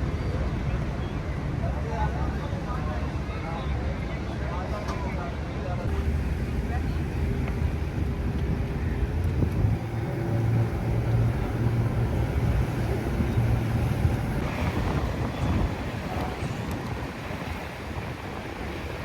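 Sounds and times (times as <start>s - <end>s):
wind on microphone: 5.8s - 19.0s
motor engine humming: 5.9s - 18.8s.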